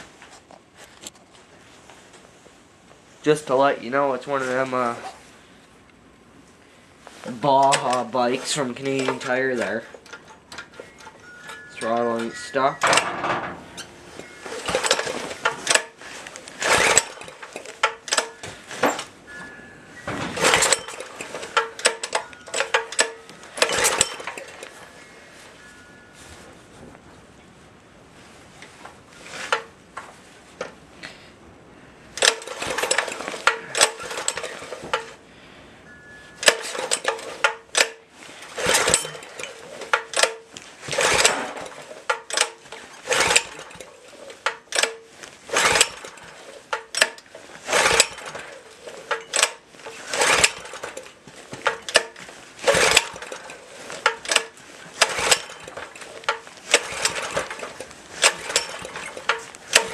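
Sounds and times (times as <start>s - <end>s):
small engine turning over: 7.6s - 19.1s, 20.0s - 24.8s, 32.2s - 35.2s, 36.4s - 59.9s
recoil starter rope yanked: 12.8s - 19.1s, 20.3s - 24.7s, 32.2s - 35.2s, 36.4s - 59.9s.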